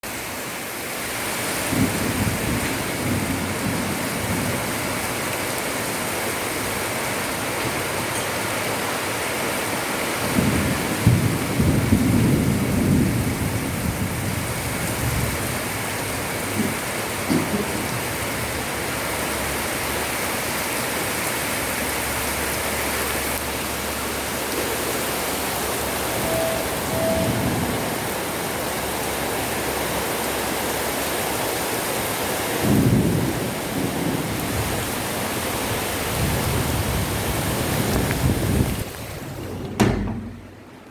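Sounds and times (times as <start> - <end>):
heavy rain pouring: 0.0 - 40.9
low rumbling: 37.8 - 40.9.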